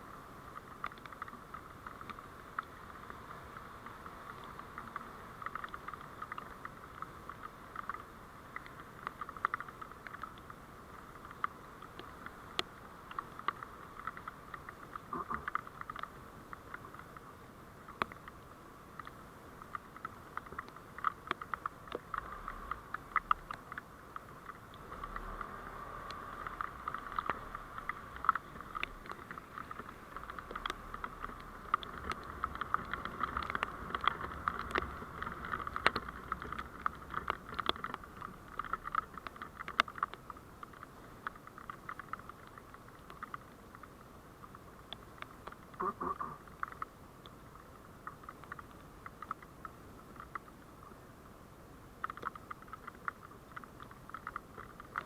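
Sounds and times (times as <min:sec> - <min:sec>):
vehicle road noise hiss: 0:00.0 - 0:52.6
small crackling clicks: 0:00.0 - 0:55.0.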